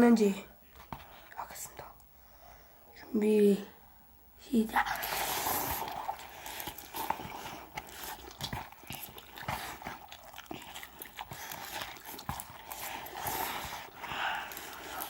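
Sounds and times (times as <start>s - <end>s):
people slurping noodles: 4.8s - 15.0s.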